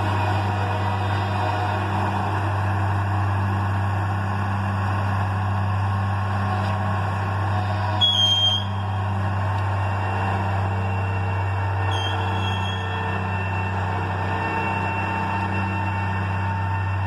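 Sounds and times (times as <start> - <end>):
diesel engine humming: 0.0 - 17.0
high-pitched squeal: 7.3 - 17.0.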